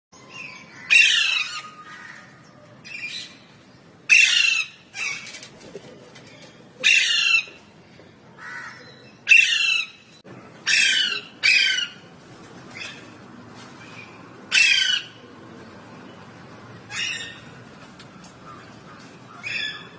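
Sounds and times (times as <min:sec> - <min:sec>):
parrot squawking: 0:10.6 - 0:12.0.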